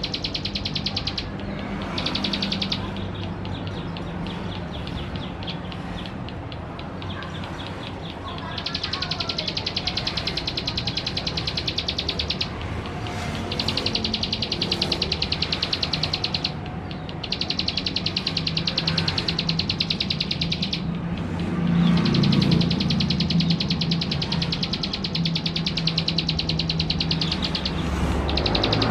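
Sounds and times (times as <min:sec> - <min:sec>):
bird singing rapid high ticks: 0:00.0 - 0:28.9.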